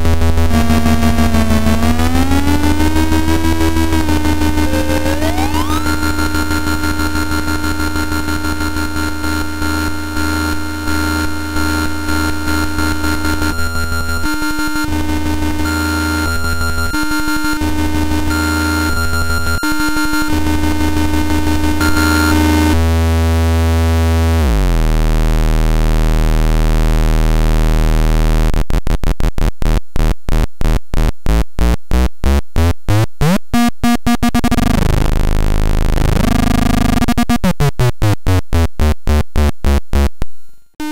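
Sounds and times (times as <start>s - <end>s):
harsh square-wave synth buzzing: 0.0s - 40.9s.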